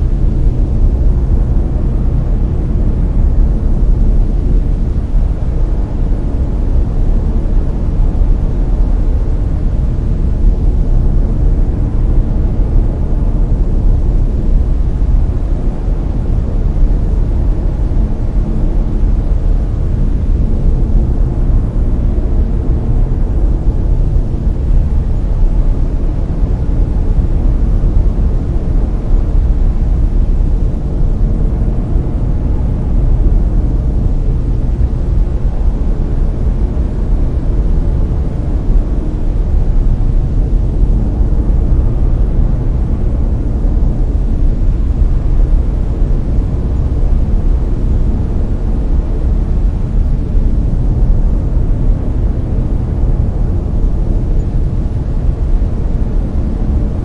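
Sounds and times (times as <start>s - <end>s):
deep rushing brown noise: 0.0s - 57.0s.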